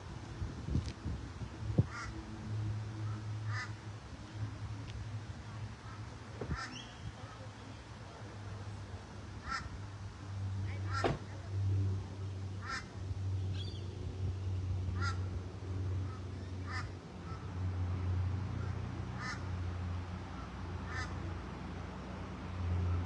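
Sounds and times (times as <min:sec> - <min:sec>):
bird calling: 0:05.8 - 0:07.4.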